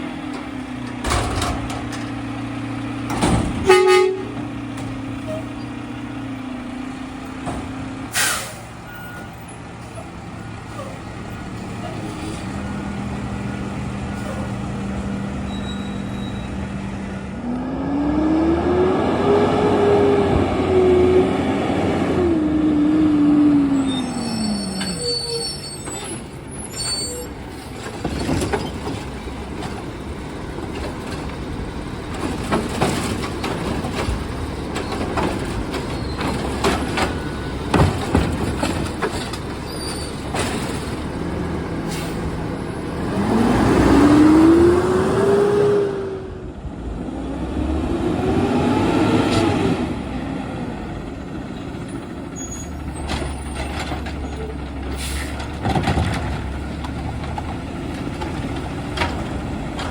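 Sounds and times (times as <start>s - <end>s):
garbage truck engine idling and revving: 0.0s - 59.9s
high metallic squeal: 15.4s - 16.6s, 23.7s - 27.7s.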